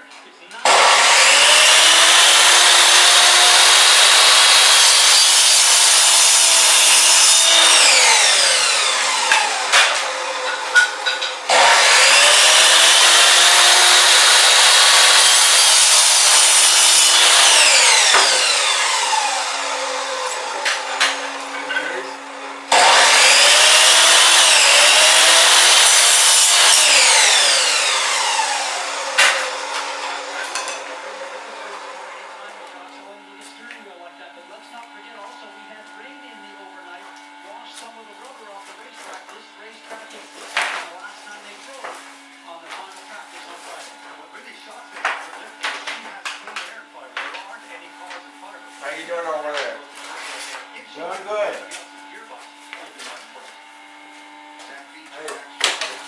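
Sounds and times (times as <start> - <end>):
electric chop saw running: 0.6 - 56.0
saw blade winding down whine: 0.7 - 32.9.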